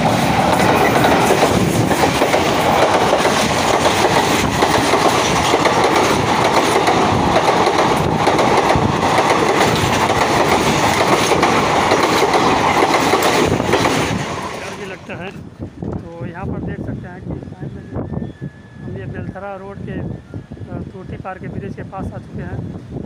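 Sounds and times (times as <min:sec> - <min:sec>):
train wheels clattering on rails: 0:00.0 - 0:14.9.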